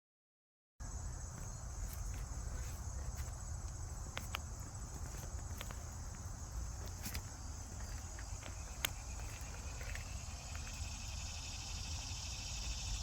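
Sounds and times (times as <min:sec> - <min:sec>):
high-pitched insect-like drone: 0:07.8 - 0:13.0.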